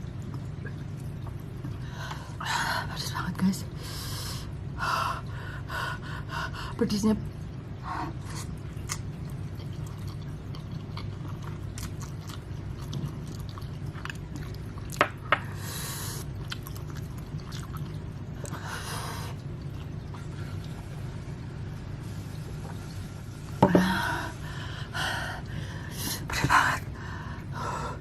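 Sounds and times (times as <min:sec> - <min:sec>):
chewing noodles: 0:08.3 - 0:15.0, 0:16.2 - 0:18.6.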